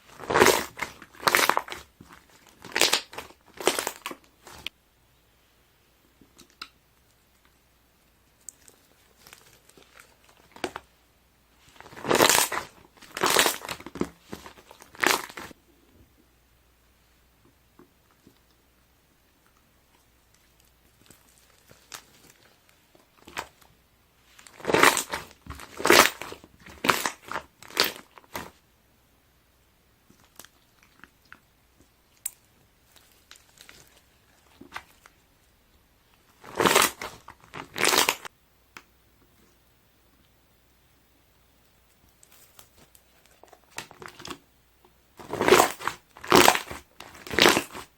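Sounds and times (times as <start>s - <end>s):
slime air bubbles crackling: 0.0s - 4.6s, 11.7s - 15.6s, 24.3s - 28.2s, 36.4s - 38.3s, 45.2s - 47.9s.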